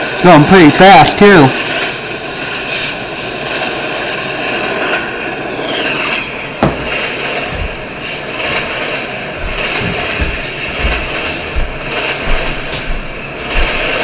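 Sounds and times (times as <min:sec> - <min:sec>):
low thumps of freight cars: 0:06.2 - 0:14.0.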